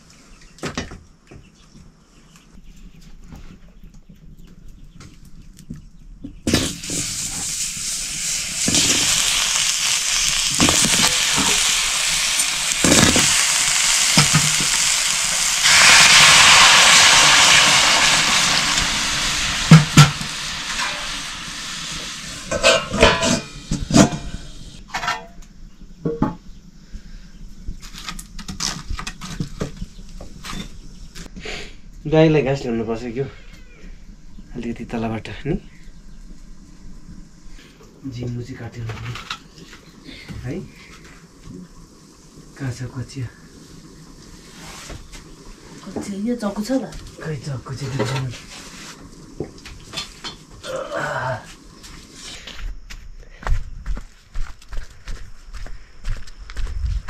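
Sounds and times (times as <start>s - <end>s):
food sizzling in oil: 6.5s - 24.8s, 34.4s - 52.4s.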